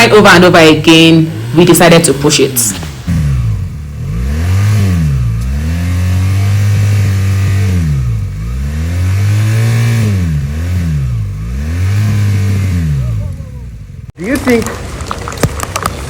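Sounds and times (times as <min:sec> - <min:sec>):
motorcycle engine revving: 0:00.0 - 0:15.1.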